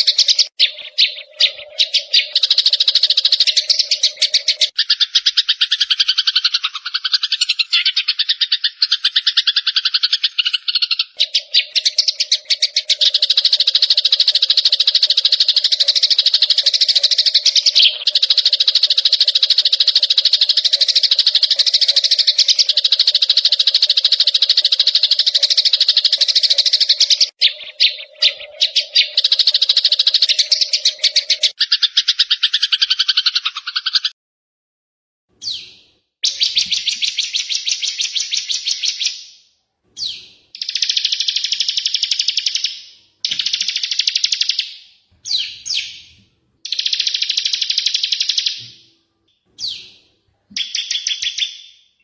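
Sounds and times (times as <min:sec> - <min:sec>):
songbird buzzy trill: 0:00.0 - 0:08.0, 0:40.0 - 0:48.9.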